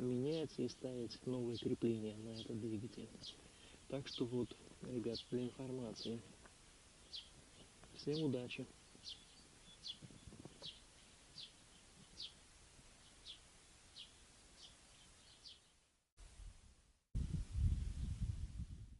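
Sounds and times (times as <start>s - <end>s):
bird chirping: 0.0s - 6.4s, 7.0s - 15.8s
faint outdoor background noise: 0.0s - 18.9s
wind rumble on microphone: 9.8s - 10.8s, 17.2s - 18.9s.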